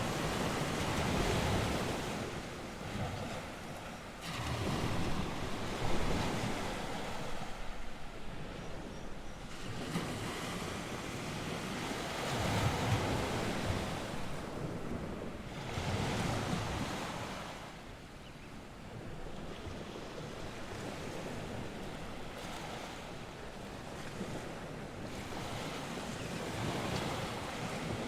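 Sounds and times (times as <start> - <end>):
wind buffeting microphone: 0.0 - 17.4
waves breaking: 0.0 - 17.8, 19.1 - 28.0.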